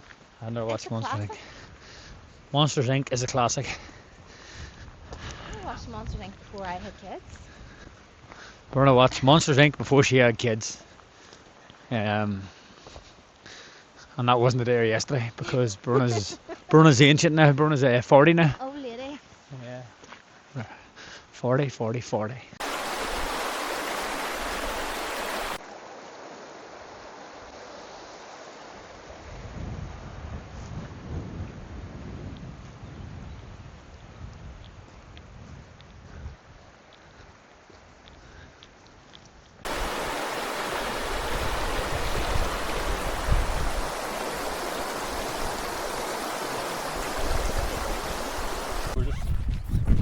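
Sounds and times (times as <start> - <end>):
wind buffeting microphone: 4.5 - 7.9, 29.3 - 36.7, 39.7 - 50.0
forest stream rushing: 22.6 - 29.4, 39.6 - 49.0.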